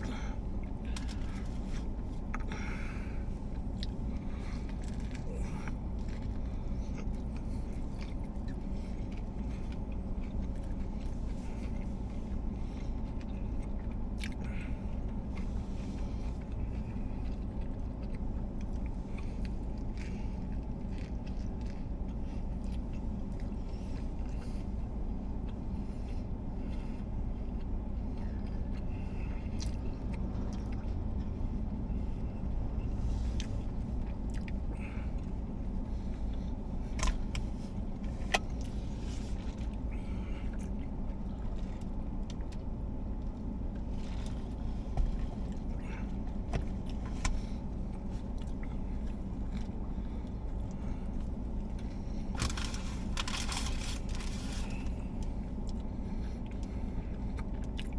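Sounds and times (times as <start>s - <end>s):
car engine idling: 0.0s - 57.6s
faint steady hum: 0.0s - 57.9s
small sharp clicks and crinkles: 52.3s - 55.3s.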